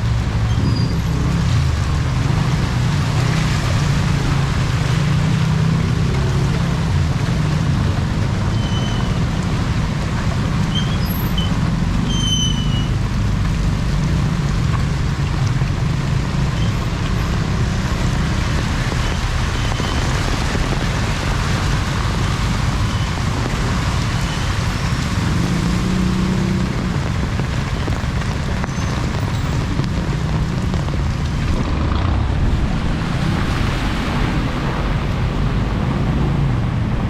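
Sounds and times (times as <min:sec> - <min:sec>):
heavy rain falling: 0:00.0 - 0:37.0
low rumble of vehicle engines: 0:00.0 - 0:37.0
short high squeaks: 0:12.1 - 0:12.9.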